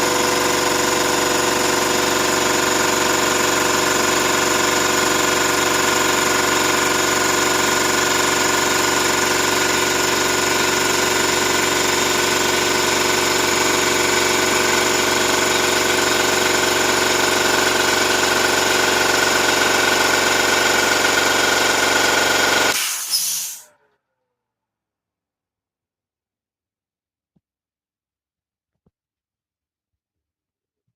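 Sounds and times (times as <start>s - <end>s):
air compressor running: 0.0s - 23.7s.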